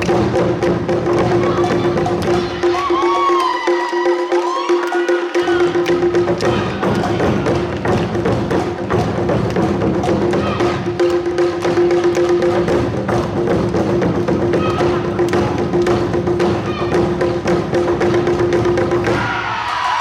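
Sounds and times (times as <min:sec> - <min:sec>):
percussion beats and clacks: 0:00.0 - 0:20.0.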